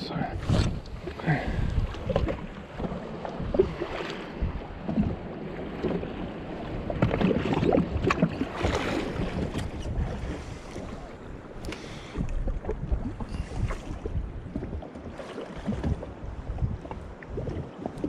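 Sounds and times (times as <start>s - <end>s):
water lapping against hull: 0.0s - 18.0s.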